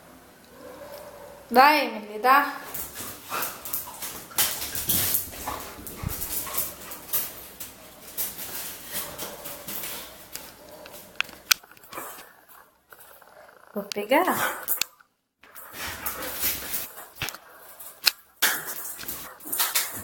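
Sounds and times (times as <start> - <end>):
scuffling: 2.7 - 13.2
dog snuffling and huffing: 2.8 - 14.8.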